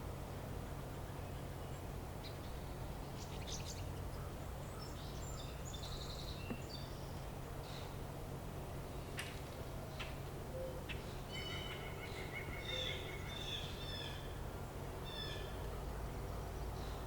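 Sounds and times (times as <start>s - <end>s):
small birds chirping: 1.1s - 8.0s.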